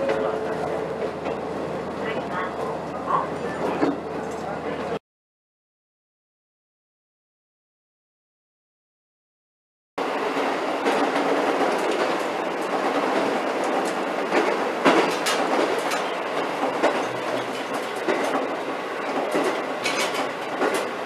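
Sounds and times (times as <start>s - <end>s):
railcar running noise: 0.0s - 5.0s, 10.0s - 21.0s
wheels clacking over rail joints: 10.8s - 21.0s.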